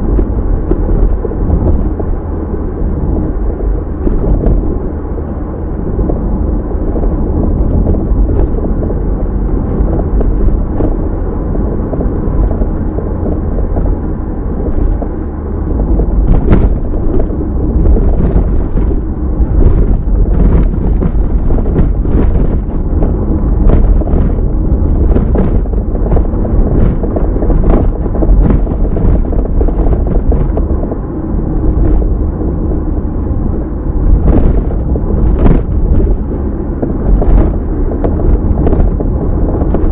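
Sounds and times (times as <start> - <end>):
tyre and engine rumble: 0.0 - 39.9
clicks and knocks over bumps: 6.9 - 31.0, 33.4 - 39.9.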